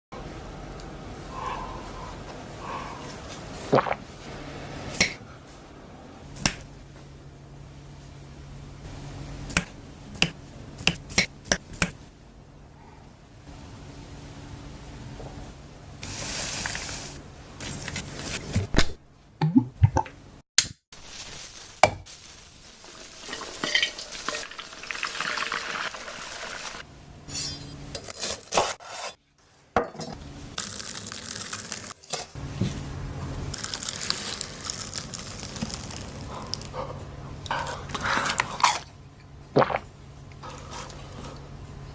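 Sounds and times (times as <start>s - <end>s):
food sizzling in oil: 21.0s - 26.8s.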